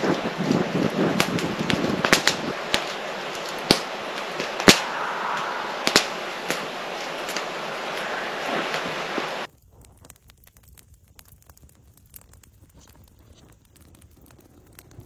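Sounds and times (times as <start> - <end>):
campfire hissing: 0.0 - 15.0
wood crackling and popping: 0.0 - 15.0.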